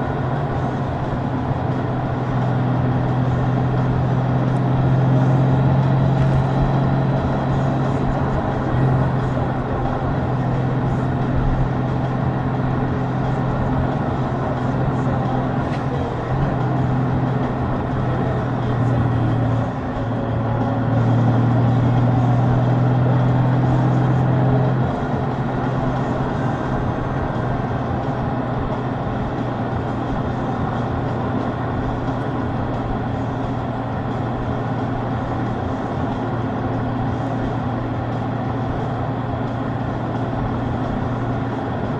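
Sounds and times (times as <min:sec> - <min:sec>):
motorcycle engine running: 0:00.0 - 0:41.9
road noise: 0:00.0 - 0:41.9.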